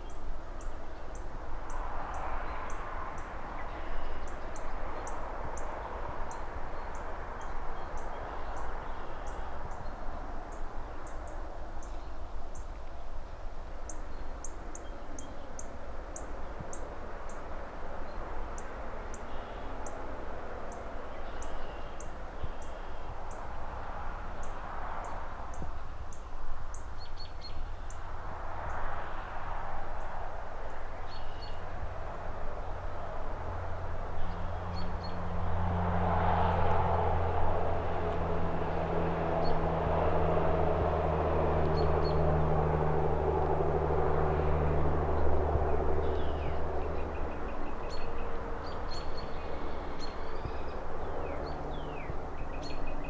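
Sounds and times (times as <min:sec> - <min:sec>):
road traffic passing: 0:00.0 - 0:53.0
low engine drone: 0:31.7 - 0:53.0
small birds chirping: 0:46.0 - 0:53.0.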